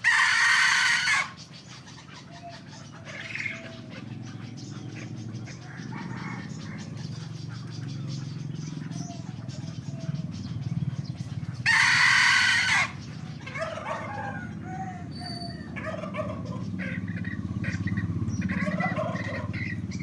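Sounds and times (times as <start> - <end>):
cockerel crowing: 0.0 - 1.4, 5.5 - 7.2, 11.6 - 17.2, 18.4 - 19.8
birds clucking and calling: 0.0 - 20.0.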